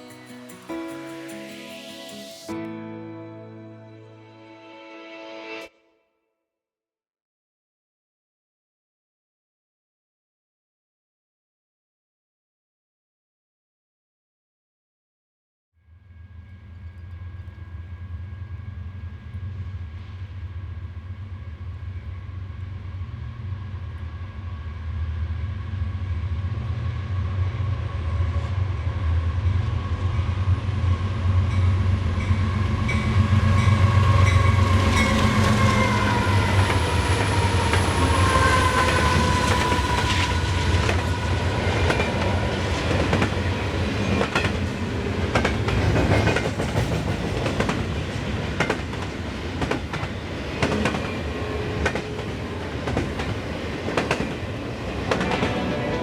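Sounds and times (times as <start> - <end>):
diesel train engine rumble: 28.8 - 45.4, 55.1 - 56.0
whining tones: 33.7 - 43.6
wheels clacking over rail joints: 34.4 - 56.0.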